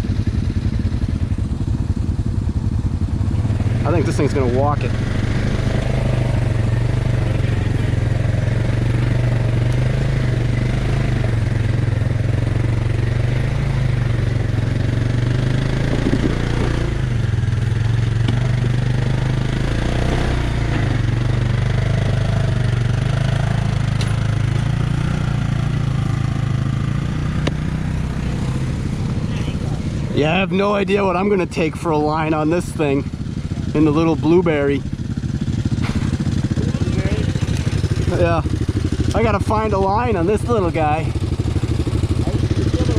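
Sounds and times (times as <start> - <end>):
quad engine running at low revs: 0.0 - 42.9.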